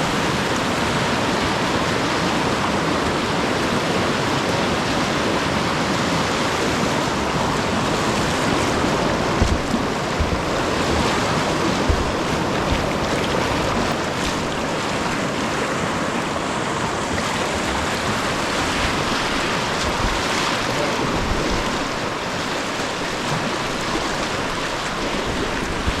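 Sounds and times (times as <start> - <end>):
river rapids rushing: 0.0 - 26.0
low thumps on microphone: 7.9 - 14.7.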